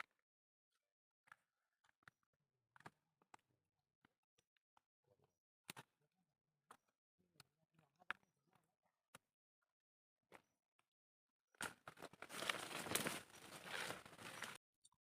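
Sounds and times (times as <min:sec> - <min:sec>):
dry leaves and brush crackling: 0:12.0 - 0:14.6.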